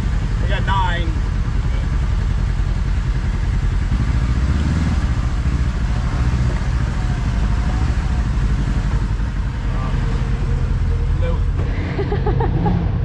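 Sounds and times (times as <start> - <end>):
vehicle engine running at low speed: 0.0 - 13.0.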